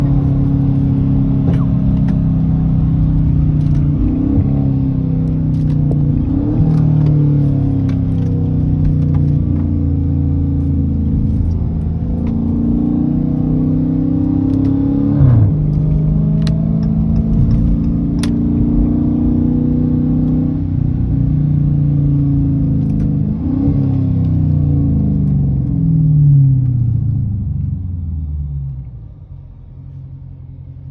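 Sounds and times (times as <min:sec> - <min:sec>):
car exhaust running: 0:00.0 - 0:30.9
engine rev surge: 0:10.9 - 0:18.0.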